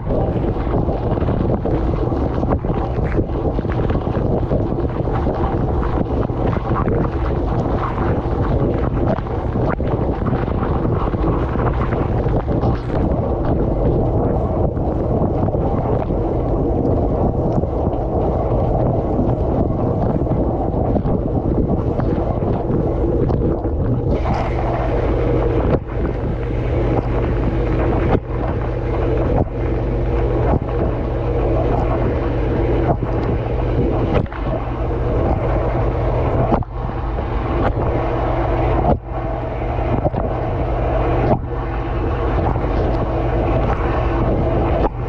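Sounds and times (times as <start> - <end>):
pump low hum: 0.0 - 45.0
water spraying in dishwasher: 21.4 - 45.0.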